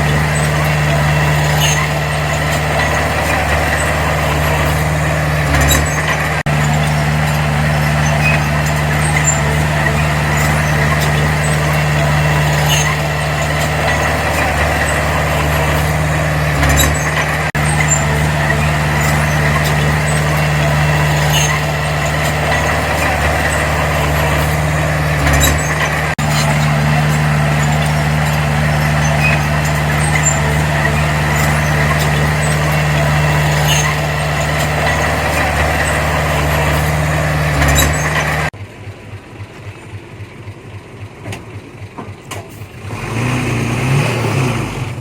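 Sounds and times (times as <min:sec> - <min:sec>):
bulldozer diesel engine running: 0:00.0 - 0:45.0.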